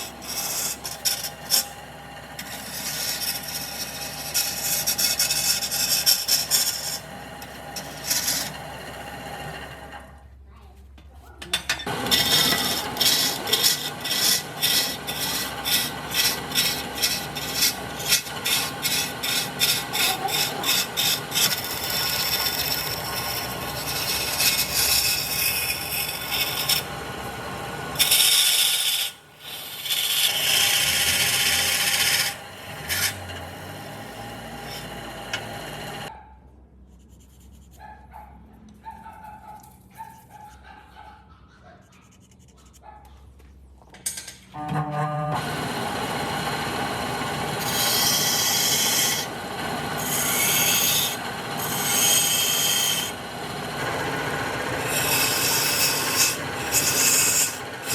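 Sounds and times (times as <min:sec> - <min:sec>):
hand rasping wood: 0:00.0 - 0:08.7, 0:11.9 - 0:36.1, 0:45.4 - 0:57.9
scraping on wood: 0:11.4 - 0:27.2.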